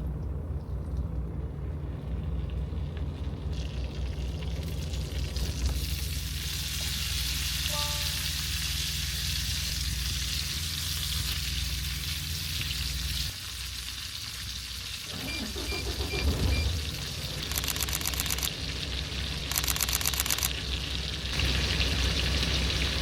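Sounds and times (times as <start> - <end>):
low steady hum: 0.0 - 23.0
vegetables sizzling in a pan: 5.7 - 15.1
short beep: 7.7 - 8.3.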